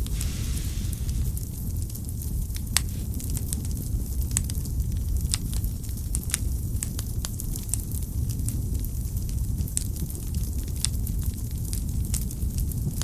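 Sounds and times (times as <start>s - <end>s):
logs crackling and popping: 0.0s - 13.0s
low rumble of flames: 0.0s - 13.0s.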